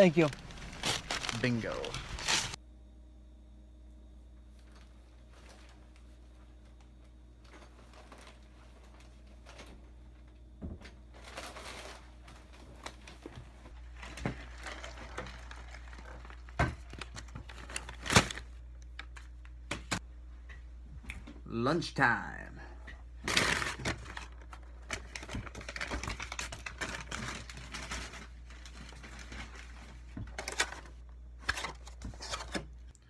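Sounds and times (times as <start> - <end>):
rustling and crinkling: 0.0 - 2.6, 4.5 - 19.4, 23.3 - 32.7
steady low hum: 0.0 - 11.1.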